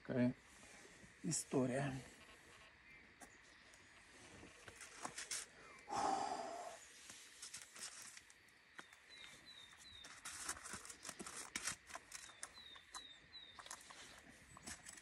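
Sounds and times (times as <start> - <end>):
small bird chirping: 8.7 - 15.0.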